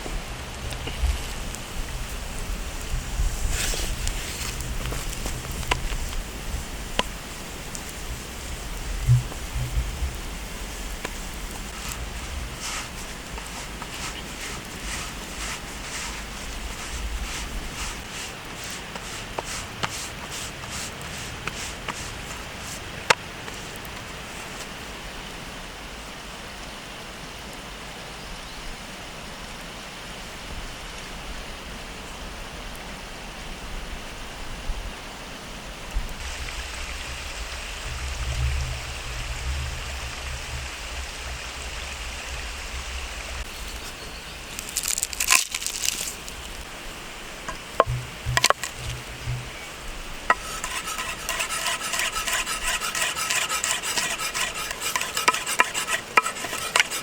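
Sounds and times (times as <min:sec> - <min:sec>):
rhythmic stirring: 0:47.5 - 0:57.0.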